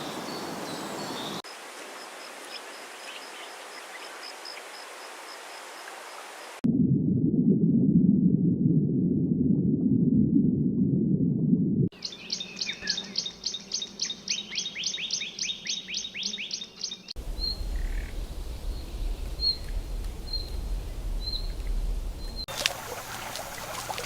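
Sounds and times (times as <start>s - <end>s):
low rumble: 6.7s - 11.9s, 17.2s - 22.5s.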